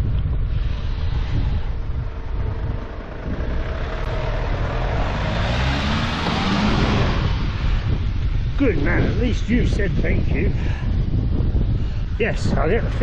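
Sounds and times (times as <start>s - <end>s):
wind buffeting microphone: 0.0s - 13.0s
car passing by: 0.7s - 8.1s.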